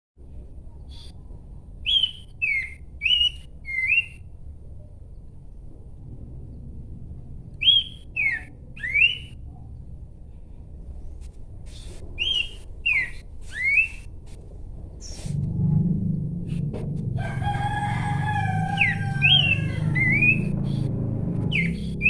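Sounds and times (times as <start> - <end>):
bird whistling song: 1.8 - 4.3, 7.6 - 9.4, 12.2 - 14.1, 18.8 - 20.8, 21.5 - 22.0.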